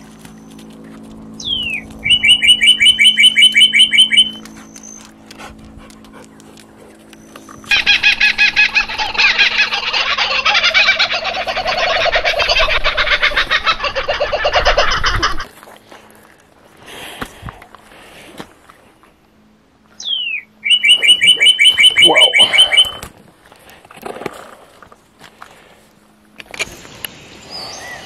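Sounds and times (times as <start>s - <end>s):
bird sharp repeated notes: 1.4s - 4.9s, 20.0s - 23.0s
bird chattering chorus: 1.4s - 5.0s, 6.3s - 15.3s, 20.0s - 23.0s
bird falling whistle: 1.4s - 5.0s, 20.0s - 23.1s.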